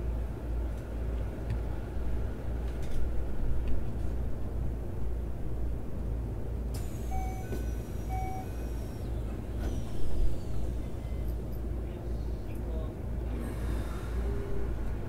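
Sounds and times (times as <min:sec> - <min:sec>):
train cabin low rumble: 0:00.0 - 0:15.0
short beeps: 0:07.1 - 0:08.7.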